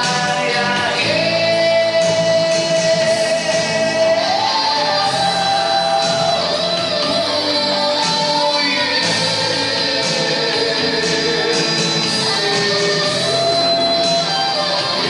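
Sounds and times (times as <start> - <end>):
guitar: 0.0 - 15.0
person singing: 0.0 - 15.0.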